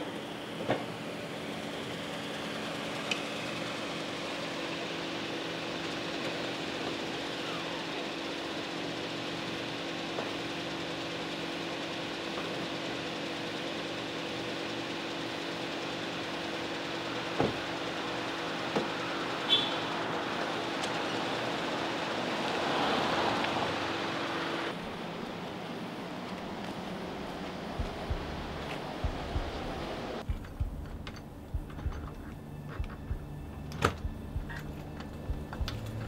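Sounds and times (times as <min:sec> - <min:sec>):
car engine idling: 0:00.0 - 0:36.0
car door shutting: 0:27.8 - 0:35.9.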